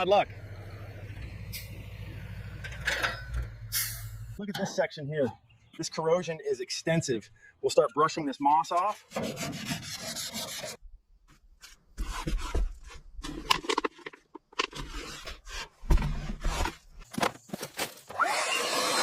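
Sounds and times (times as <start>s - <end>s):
brush scraping car bodywork: 8.6s - 10.8s, 11.6s - 13.4s, 14.0s - 17.1s.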